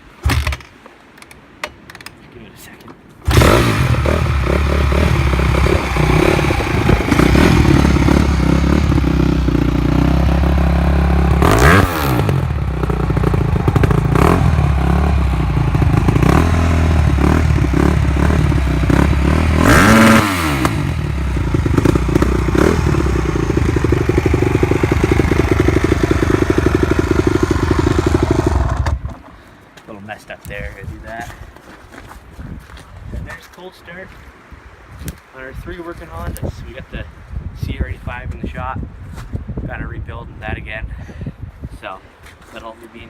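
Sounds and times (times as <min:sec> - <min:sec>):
motorcycle engine idling and revving: 0:03.3 - 0:29.2.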